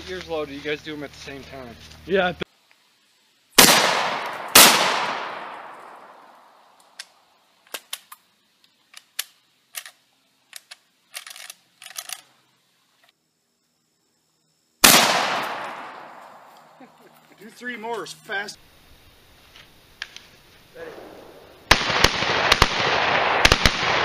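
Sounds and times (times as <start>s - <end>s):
shotgun blasts echoing: 3.6s - 6.3s, 14.8s - 16.5s, 20.8s - 24.0s.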